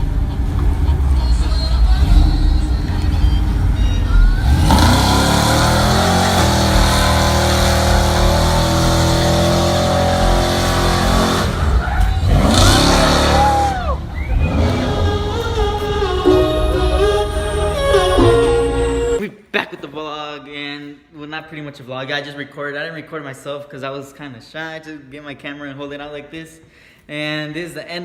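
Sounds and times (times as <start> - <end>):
car engine revving: 0.0 - 19.2.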